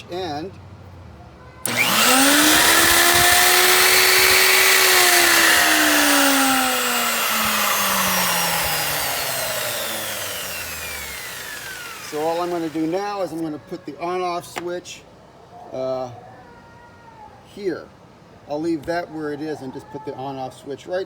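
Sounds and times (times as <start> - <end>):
table saw motor whining: 1.6 - 13.4.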